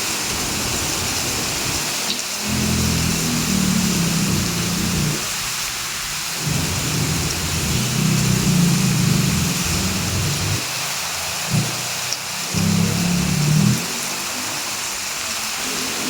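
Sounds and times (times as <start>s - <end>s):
heavy rain: 0.0s - 16.0s
low rumble: 6.4s - 10.6s, 11.5s - 11.8s.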